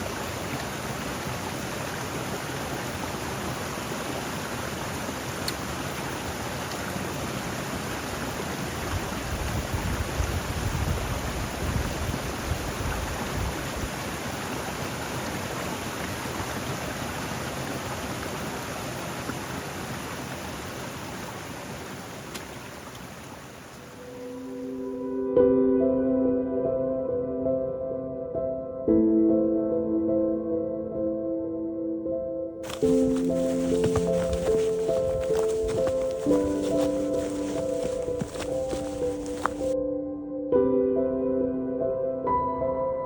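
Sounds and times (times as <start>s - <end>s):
steady rain: 0.0s - 24.9s, 32.6s - 39.8s
strong wind: 8.8s - 14.0s
wind buffeting microphone: 8.9s - 14.0s.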